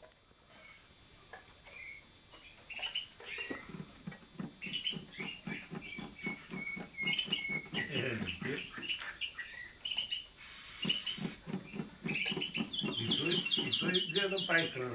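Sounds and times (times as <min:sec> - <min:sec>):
caged songbirds chirping and singing: 0:01.7 - 0:14.9
low rhythmic pulsing: 0:03.1 - 0:14.9.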